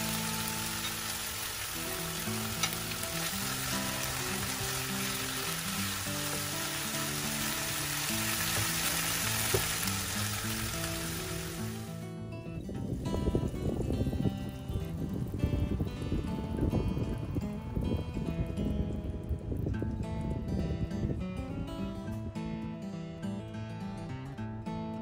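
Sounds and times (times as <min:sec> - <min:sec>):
fish sizzling in frying pan: 0:00.0 - 0:11.9.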